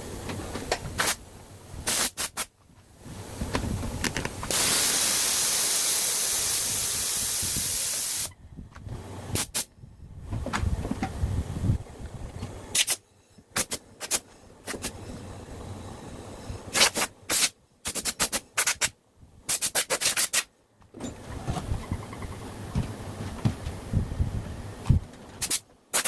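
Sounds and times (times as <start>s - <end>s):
compressed air hissing bursts: 0.9s - 8.3s, 9.0s - 9.7s, 12.7s - 13.0s, 13.6s - 18.9s, 25.4s - 26.0s.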